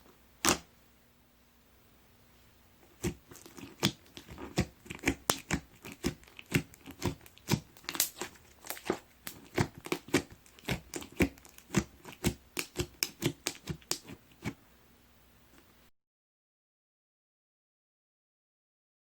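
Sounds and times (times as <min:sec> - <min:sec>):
slime crackling pops: 0:03.0 - 0:14.2.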